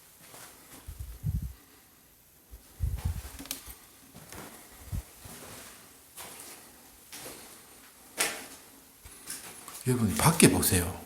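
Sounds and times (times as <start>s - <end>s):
rustling: 2.6s - 9.9s
footsteps: 2.8s - 10.7s.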